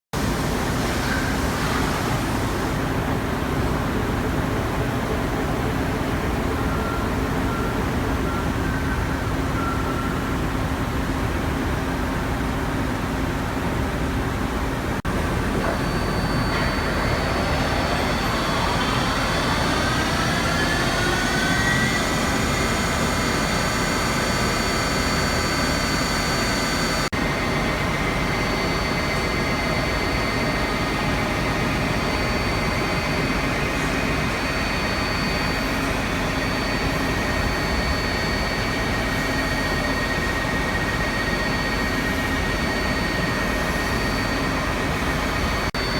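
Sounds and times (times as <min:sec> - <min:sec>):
machine hum: 0:15.0 - 0:43.1
spindle drive whine: 0:15.1 - 0:45.9.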